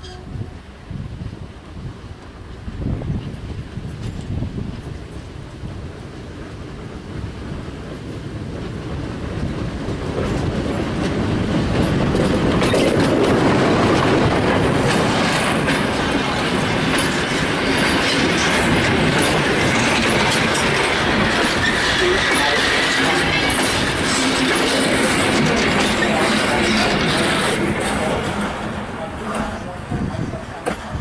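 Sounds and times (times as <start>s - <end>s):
diesel locomotive passing: 0.0s - 31.0s
wheels clicking over rail joints: 8.0s - 29.6s.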